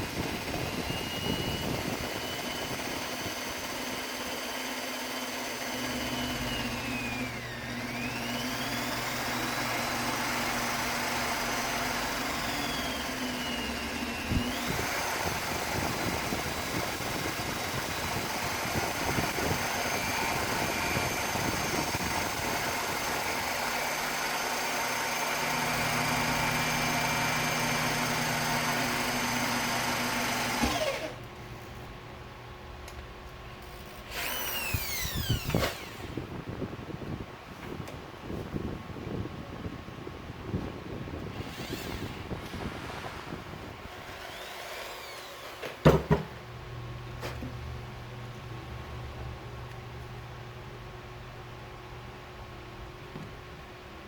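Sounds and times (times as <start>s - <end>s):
power tool motor whining: 0.0s - 31.4s, 33.6s - 36.3s, 41.2s - 46.0s.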